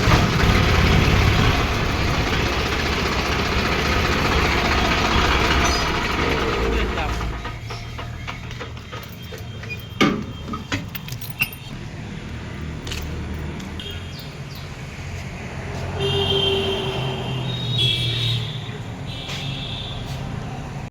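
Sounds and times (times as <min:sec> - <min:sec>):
tractor engine running: 0:00.0 - 0:13.8.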